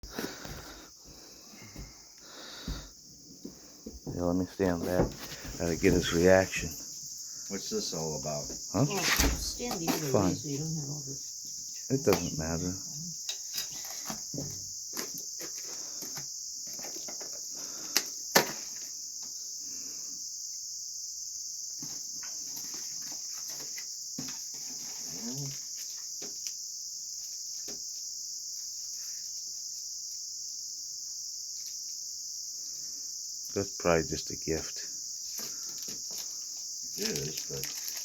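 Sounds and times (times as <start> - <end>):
crickets chirping: 0.0 - 38.0
rustling and handling noises: 35.2 - 38.0.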